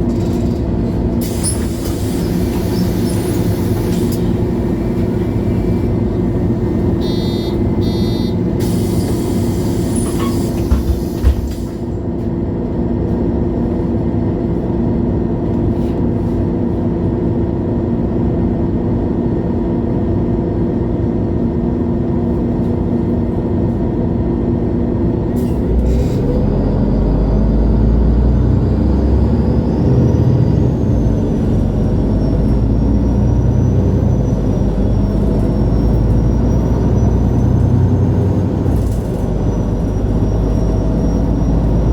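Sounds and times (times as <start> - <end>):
bus engine revving up: 0.0 - 11.9, 25.3 - 41.9
bus engine idling: 0.0 - 41.9
short beeps: 7.0 - 8.4.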